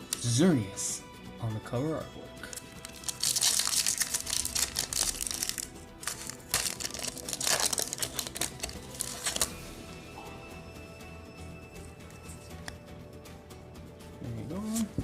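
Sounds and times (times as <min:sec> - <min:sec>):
foil wrapper tearing and crinkling: 0:02.5 - 0:09.5.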